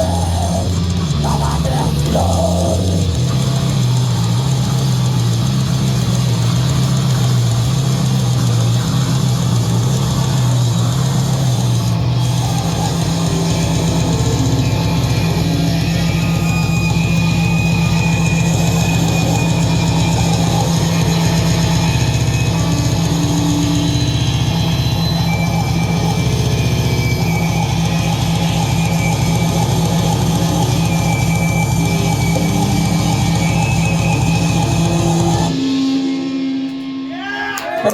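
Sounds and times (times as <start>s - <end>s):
heavy rock band playing: 0.0s - 10.7s
distorted guitar and bass drone: 0.0s - 37.9s.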